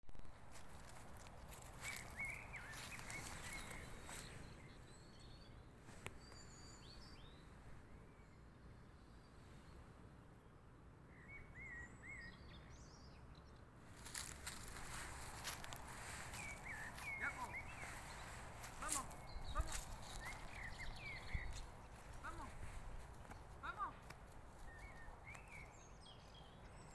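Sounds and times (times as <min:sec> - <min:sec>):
low outdoor background noise: 0:00.1 - 0:26.9
crackling rustles: 0:00.3 - 0:04.6, 0:13.8 - 0:25.7
small birds chirping: 0:00.4 - 0:09.9, 0:11.1 - 0:26.9.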